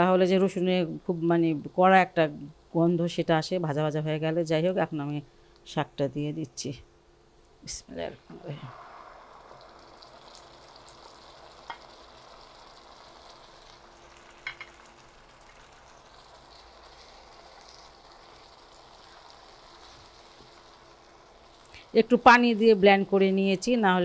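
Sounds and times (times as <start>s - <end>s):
paste sizzling in hot oil: 8.3s - 23.8s.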